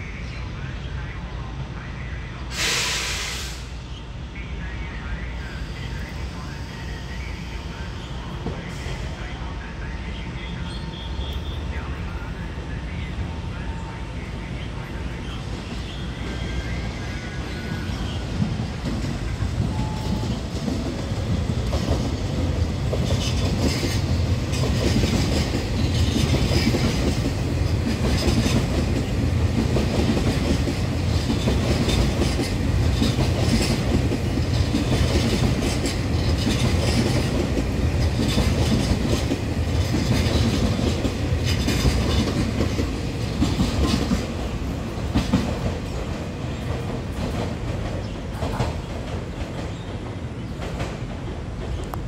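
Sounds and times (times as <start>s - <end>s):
train wheels rumbling on rail: 0.0s - 52.0s
clickety-clack over rail joints: 8.4s - 8.8s, 15.5s - 52.0s.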